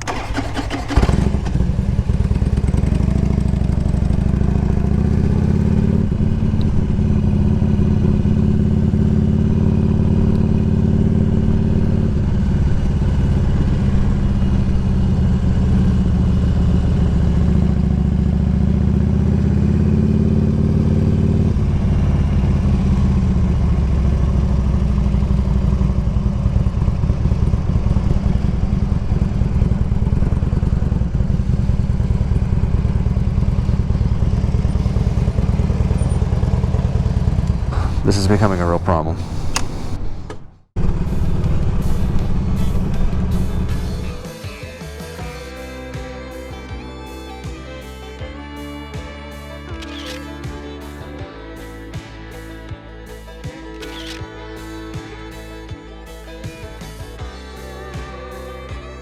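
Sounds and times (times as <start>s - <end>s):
motorcycle engine running: 0.0s - 46.4s.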